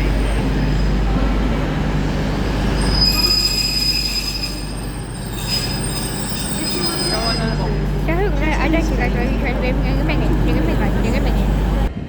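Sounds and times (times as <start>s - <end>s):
train rumbling: 0.0s - 12.0s
high-pitched wheel squeal: 2.7s - 7.9s.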